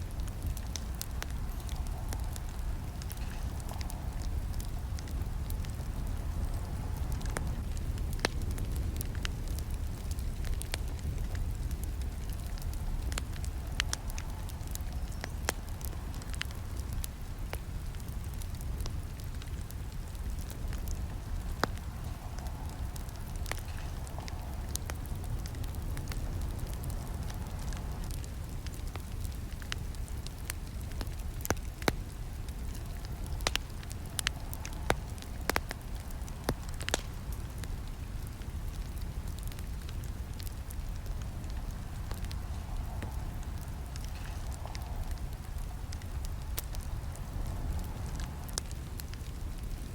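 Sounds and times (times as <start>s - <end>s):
burning wood crackling and snapping: 0.0s - 49.9s
flames rumbling: 0.0s - 49.9s.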